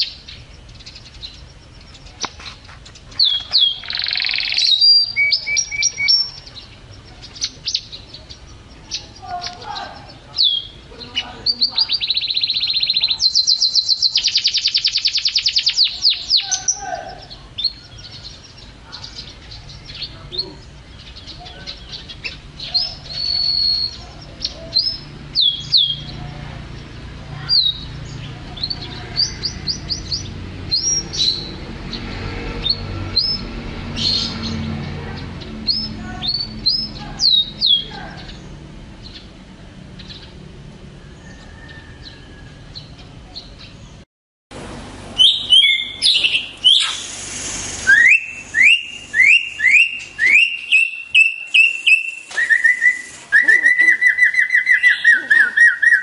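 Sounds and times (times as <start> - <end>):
bird singing trills and whistles: 0.0 - 26.2, 35.7 - 39.3, 45.2 - 47.1, 47.8 - 56.0.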